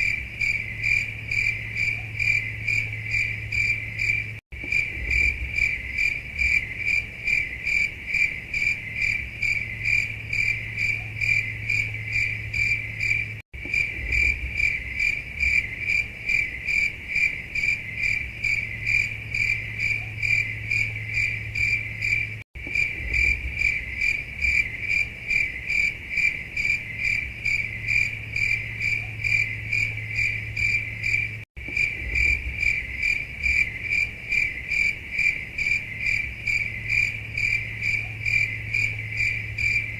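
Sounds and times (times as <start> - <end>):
faint low hum: 0.0 - 25.8
cricket chirping: 0.0 - 39.9.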